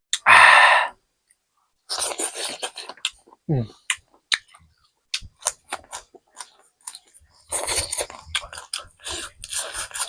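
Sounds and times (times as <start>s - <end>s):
chewing with wet mouth clicks: 1.3s - 10.0s.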